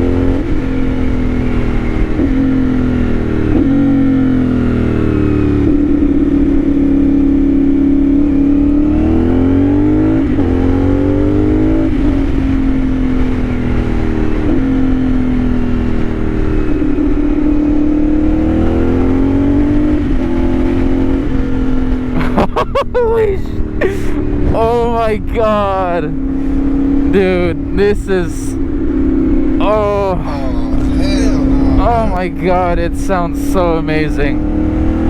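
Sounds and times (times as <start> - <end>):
motorcycle engine revving: 0.0 - 22.2, 32.9 - 35.0.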